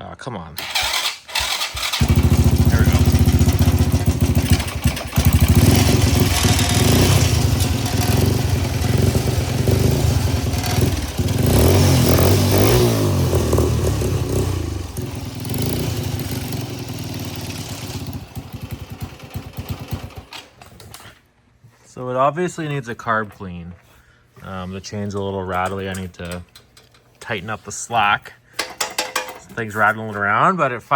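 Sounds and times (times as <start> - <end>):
drive chain rattling: 0.6 - 12.3, 25.4 - 27.1, 28.6 - 29.6
lawnmower engine running rough: 0.6 - 20.9.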